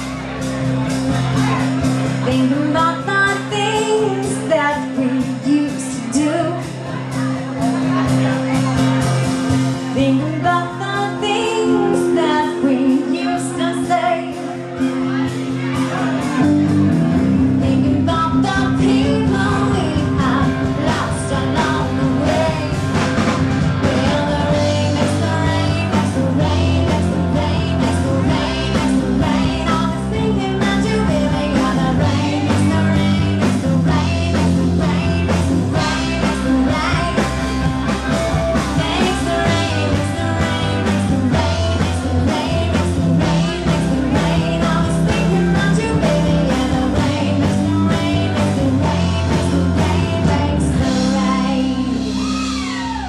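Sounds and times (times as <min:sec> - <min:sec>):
bass guitar: 0:00.0 - 0:53.0
electric guitar: 0:00.0 - 0:53.0
steady drum beat: 0:13.9 - 0:53.0.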